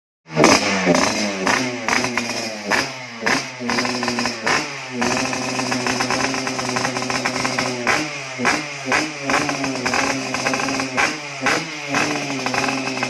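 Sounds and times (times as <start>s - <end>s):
motorcycle engine revving and idling: 0.3s - 13.0s.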